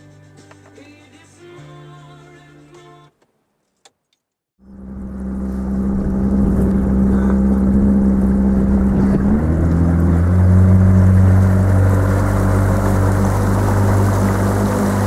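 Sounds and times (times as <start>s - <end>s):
motorboat engine running: 4.6s - 15.0s.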